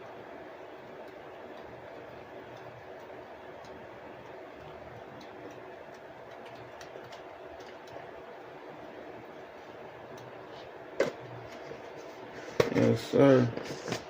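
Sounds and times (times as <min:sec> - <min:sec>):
faint ticks and clicks: 0:00.0 - 0:08.1
steady background hum: 0:00.0 - 0:14.0.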